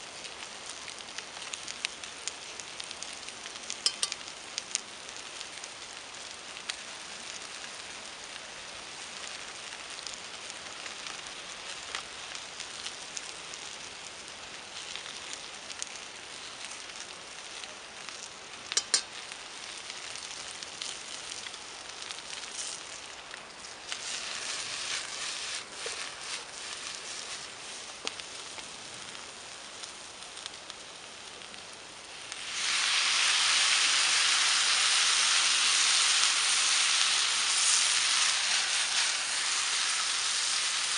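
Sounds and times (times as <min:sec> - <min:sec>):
vegetables sizzling in a frying pan: 0:00.0 - 0:40.9
sharp pops: 0:18.7 - 0:19.2.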